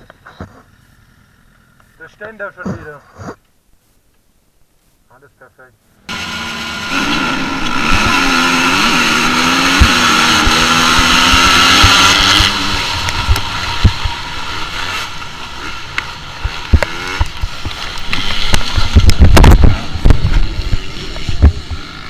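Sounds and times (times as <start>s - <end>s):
motorcycle engine running: 6.1s - 22.0s.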